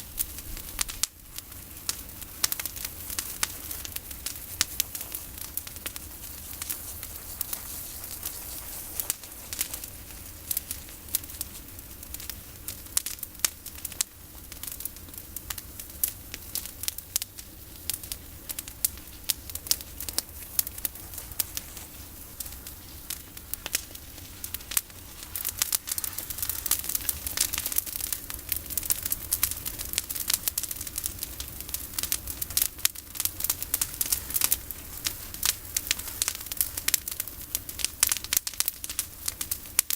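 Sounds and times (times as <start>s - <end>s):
bonfire crackling and popping: 0.0s - 39.9s
fire hissing: 0.0s - 39.9s.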